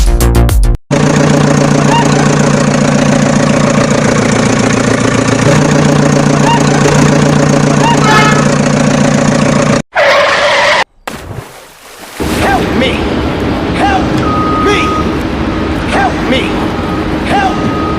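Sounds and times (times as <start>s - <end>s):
music: 0.0s - 0.8s
vehicle engine idling: 0.9s - 9.8s.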